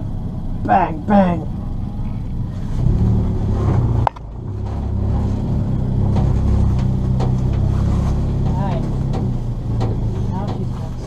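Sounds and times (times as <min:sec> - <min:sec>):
car engine accelerating: 0:00.0 - 0:11.0
gear change click: 0:03.6 - 0:11.0.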